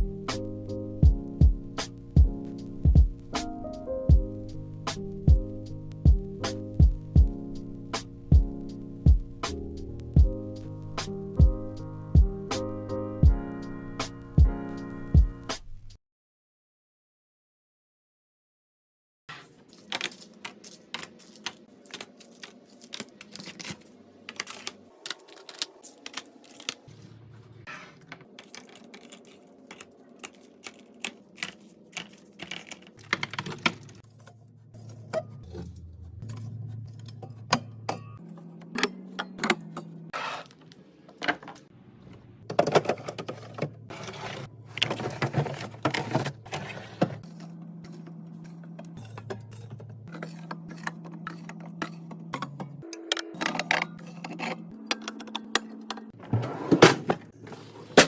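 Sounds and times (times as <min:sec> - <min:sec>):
bottles and cans clattering: 0:42.5 - 0:47.2.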